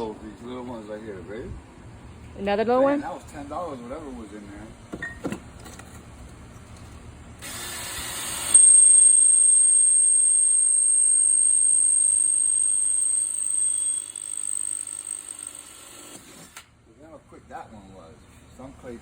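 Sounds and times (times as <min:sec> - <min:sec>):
power drill boring through clay: 0:07.4 - 0:09.0, 0:12.3 - 0:16.7.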